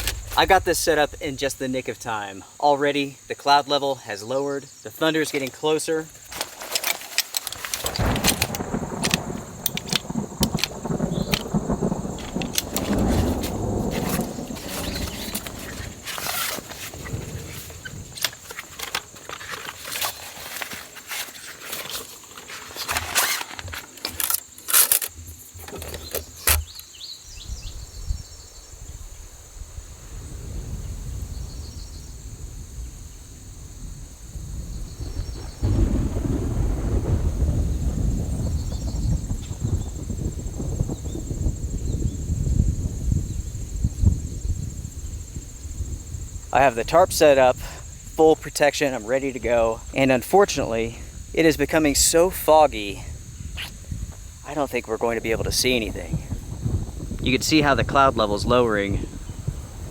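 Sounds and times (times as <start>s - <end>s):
rustling: 0.0s - 1.9s, 5.1s - 27.0s
thunder rumbling: 0.0s - 2.6s, 7.5s - 20.6s, 27.3s - 59.9s
insects droning: 0.0s - 59.9s.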